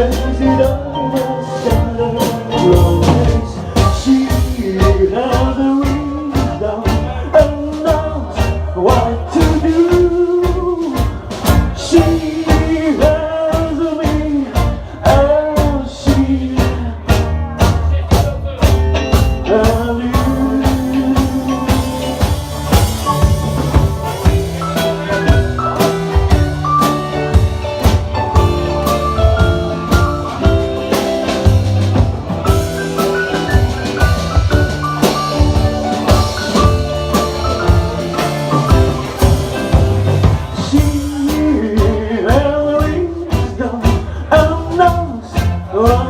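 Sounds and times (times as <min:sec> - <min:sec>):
bass: 0:00.0 - 0:46.0
steady drum beat: 0:00.0 - 0:46.0
lead guitar melody: 0:18.9 - 0:43.6.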